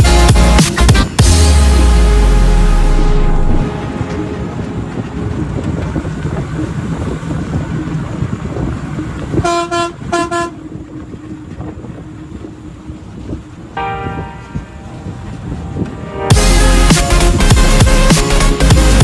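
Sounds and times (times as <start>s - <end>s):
traffic rumble: 0.0s - 19.0s
vehicle horn honking: 9.4s - 10.7s.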